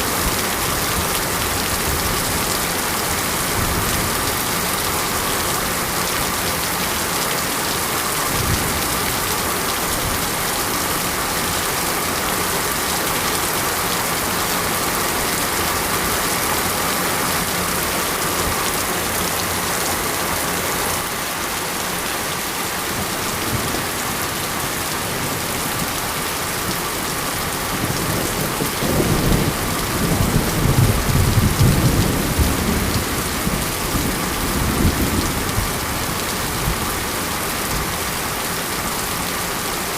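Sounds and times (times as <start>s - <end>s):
heavy rain falling: 0.0s - 39.9s
low thunder rumble: 27.8s - 36.0s.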